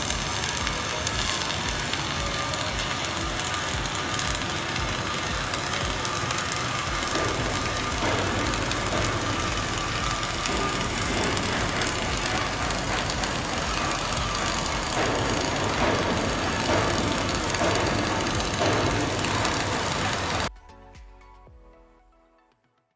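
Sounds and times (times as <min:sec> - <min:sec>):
welding arc crackling: 0:00.0 - 0:20.5.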